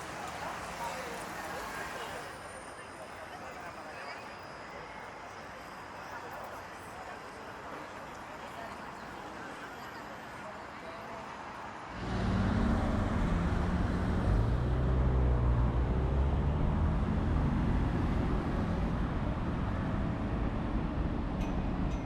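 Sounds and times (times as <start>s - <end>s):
city traffic noise: 0.0s - 22.0s
vehicle engine humming: 11.9s - 22.0s.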